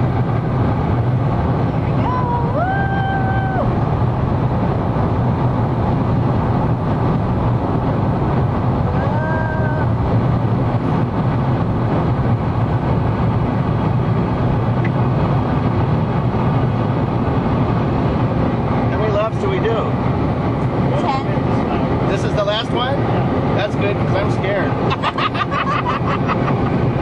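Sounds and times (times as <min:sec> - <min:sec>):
roar of engine tyres and wind: 0:00.0 - 0:27.0
passenger whooping: 0:01.7 - 0:04.5, 0:08.8 - 0:10.3.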